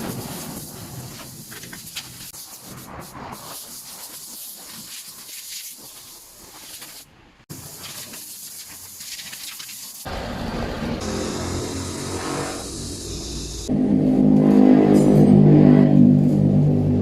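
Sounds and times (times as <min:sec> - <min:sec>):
steady hissing spray: 0:00.0 - 0:10.3, 0:11.0 - 0:13.7.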